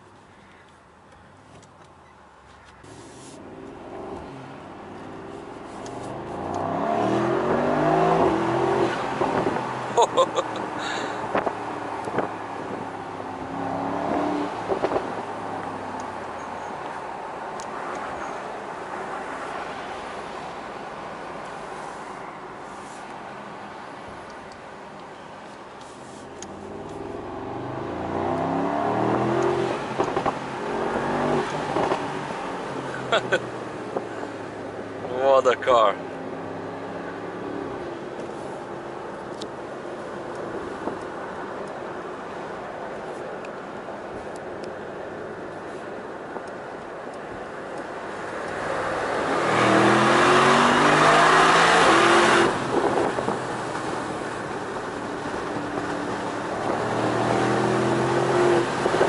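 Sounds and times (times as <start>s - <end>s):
car engine accelerating hard: 3.5s - 16.1s, 26.6s - 38.1s, 48.0s - 59.0s
exhaust pops and crackles: 11.3s - 12.3s, 30.0s - 30.4s.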